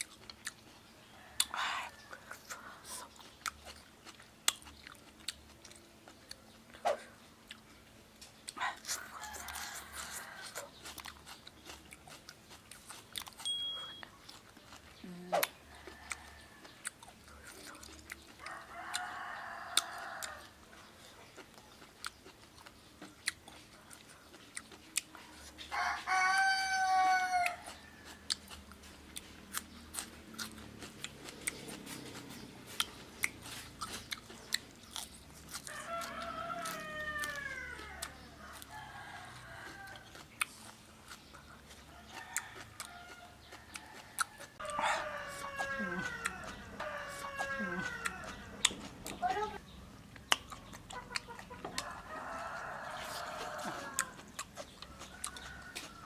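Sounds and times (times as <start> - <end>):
close chewing and biting: 0.0 - 56.0
rooster crowing: 9.1 - 10.7, 15.8 - 16.7, 18.4 - 20.6, 25.7 - 28.4, 35.6 - 40.2, 42.0 - 48.7, 51.7 - 56.0.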